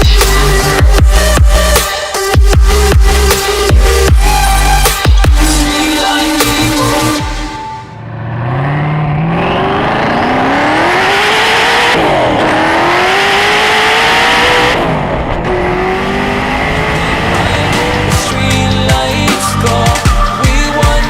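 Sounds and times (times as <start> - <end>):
car engine accelerating: 7.9 - 20.4.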